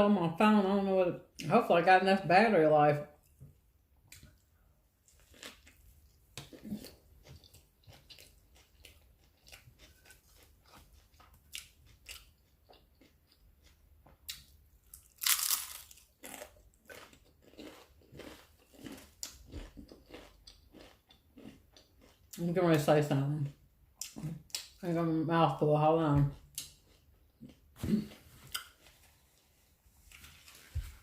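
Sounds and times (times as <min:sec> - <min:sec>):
chewing and mouth smacking: 0:04.1 - 0:22.4
crunchy bite: 0:14.9 - 0:22.1.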